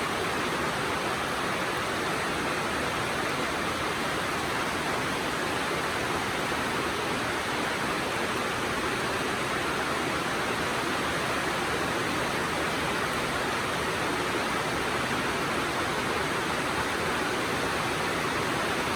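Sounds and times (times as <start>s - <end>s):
steady rainfall hiss: 0.0s - 18.9s.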